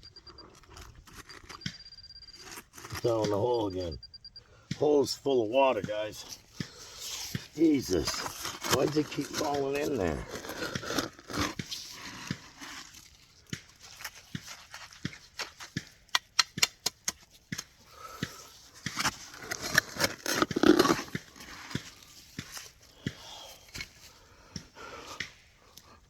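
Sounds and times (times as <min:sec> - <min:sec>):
digging and scraping in mud: 0:00.0 - 0:26.0
rustling scrape: 0:06.2 - 0:15.7.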